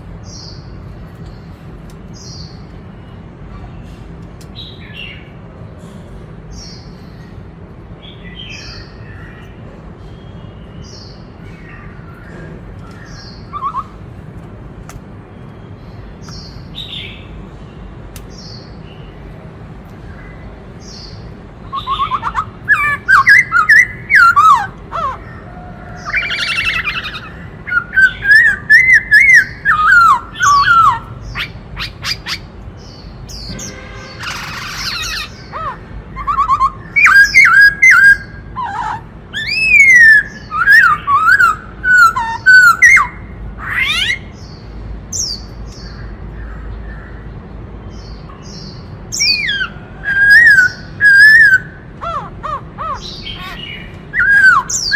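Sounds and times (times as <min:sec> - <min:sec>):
bird singing whistled phrases: 0:13.2 - 0:14.0, 0:21.7 - 0:24.7, 0:26.0 - 0:32.4, 0:34.3 - 0:43.2, 0:49.2 - 0:52.2, 0:52.9 - 0:54.9.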